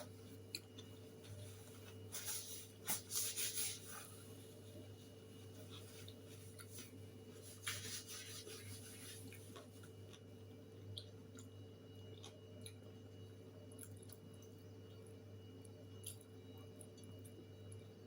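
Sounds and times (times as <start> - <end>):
steady low hum: 0.0 - 18.0
person chewing food: 0.2 - 1.6, 10.9 - 12.9, 16.0 - 17.8.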